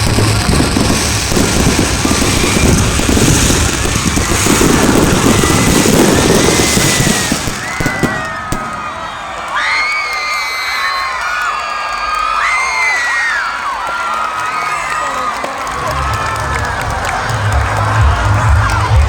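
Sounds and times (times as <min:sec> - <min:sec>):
fireworks crackling and banging: 0:00.0 - 0:09.4
crowd shouting: 0:00.0 - 0:19.0.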